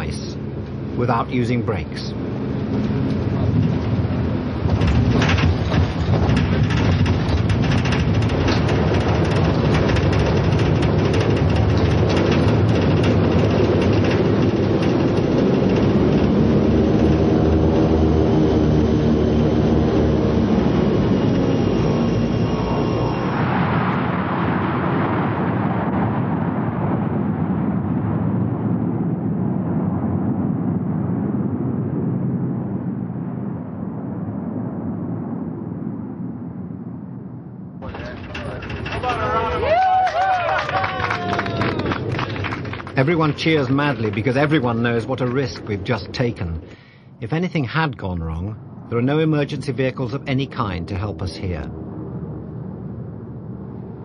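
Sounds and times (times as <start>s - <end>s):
aircraft engine and airframe noise: 0.0s - 54.0s
clattering knocks: 4.6s - 17.5s.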